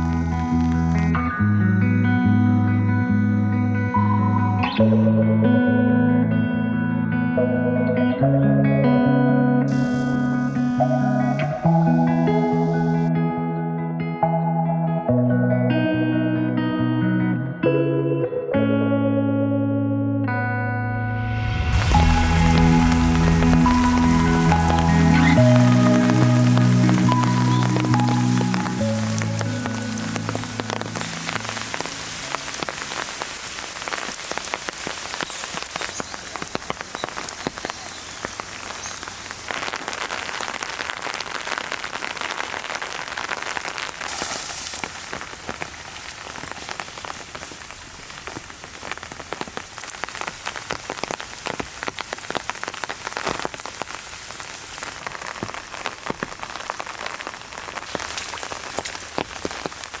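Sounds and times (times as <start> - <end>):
heavy rain falling: 0.0 - 5.1, 9.7 - 13.1, 21.2 - 60.0
background music: 0.0 - 33.2.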